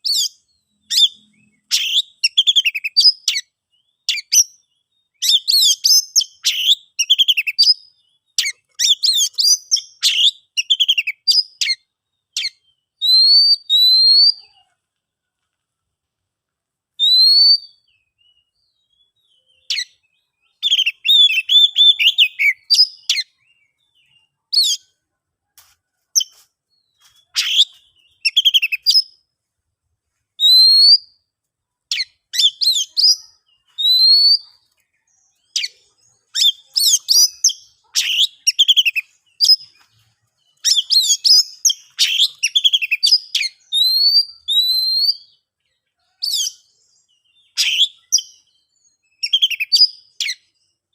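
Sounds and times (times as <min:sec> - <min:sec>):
bird whistling and chattering: 0:00.0 - 0:03.4, 0:05.2 - 0:07.8, 0:12.4 - 0:14.5, 0:17.0 - 0:17.8, 0:20.6 - 0:23.3, 0:27.3 - 0:29.1, 0:30.4 - 0:31.1, 0:31.9 - 0:34.6, 0:35.5 - 0:39.7, 0:40.6 - 0:45.4, 0:47.4 - 0:48.4, 0:49.2 - 0:50.4.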